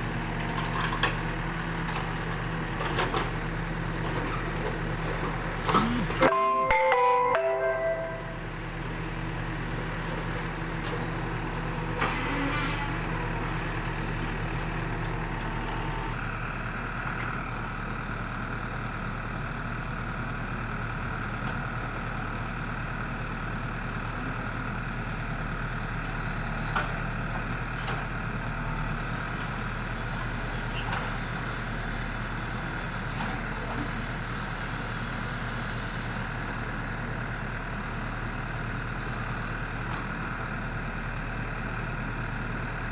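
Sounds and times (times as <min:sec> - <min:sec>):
diesel engine running: 0:00.0 - 0:42.9
high whine: 0:05.8 - 0:08.7.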